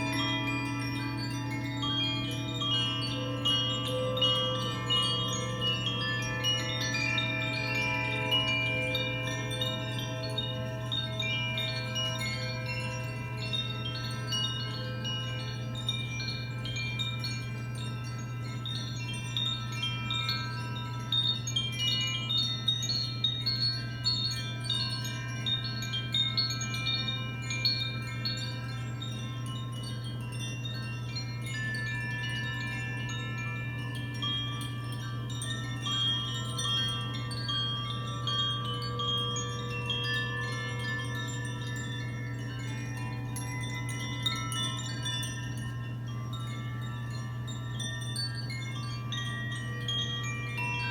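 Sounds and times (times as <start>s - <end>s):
chimes ringing: 0.0s - 50.9s.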